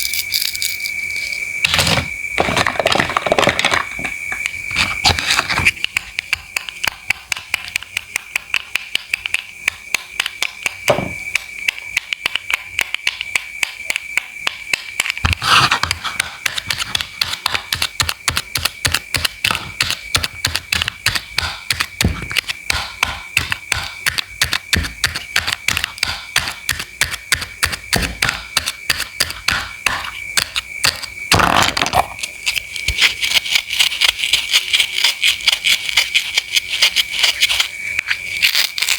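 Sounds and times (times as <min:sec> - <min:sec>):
knife chopping on cutting board: 0:10.4 - 0:11.2, 0:15.2 - 0:31.5.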